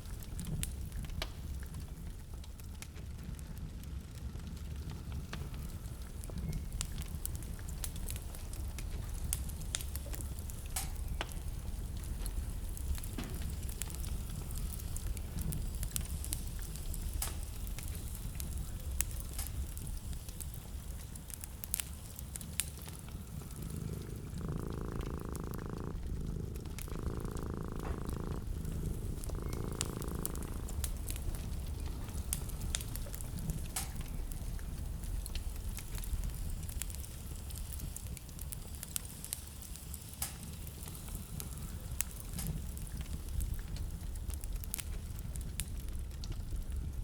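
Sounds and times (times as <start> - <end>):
low steady rumble: 0.0 - 36.8
wood fire crackling: 0.0 - 47.0.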